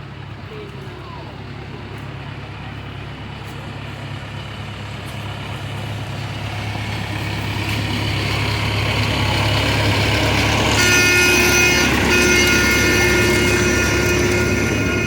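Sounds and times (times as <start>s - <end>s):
train engine rumble: 0.0s - 15.0s
train horn blast: 9.5s - 15.0s.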